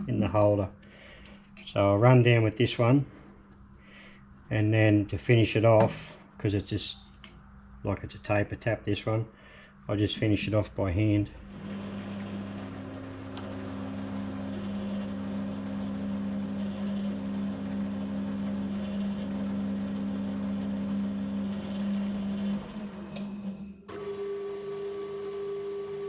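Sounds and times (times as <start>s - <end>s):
metal lathe running: 11.6s - 22.9s, 23.9s - 26.0s.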